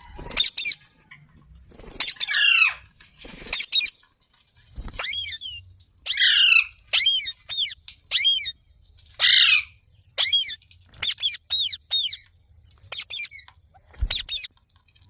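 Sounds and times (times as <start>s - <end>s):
parrot calling: 2.0s - 2.9s, 5.0s - 8.6s, 9.2s - 12.2s
parrot screeches: 2.0s - 2.9s, 6.1s - 8.4s, 9.2s - 12.2s.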